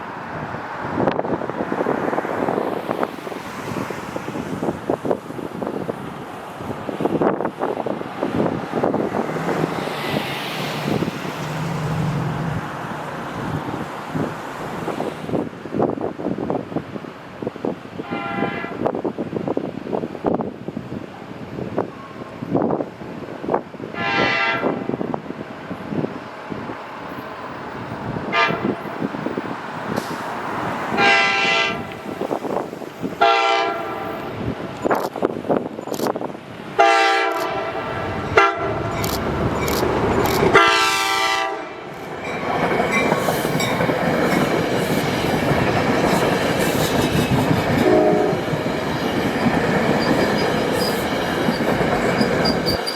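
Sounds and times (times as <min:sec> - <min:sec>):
approaching train rumble: 0:00.0 - 0:20.4, 0:21.4 - 0:52.9
wind buffeting microphone: 0:00.0 - 0:52.9
vehicle passing by: 0:09.1 - 0:15.3
train air horn blasts: 0:18.0 - 0:18.9, 0:24.0 - 0:25.0, 0:28.3 - 0:29.0, 0:31.0 - 0:32.0, 0:33.2 - 0:34.3, 0:36.8 - 0:38.9, 0:40.5 - 0:41.9, 0:47.8 - 0:48.4.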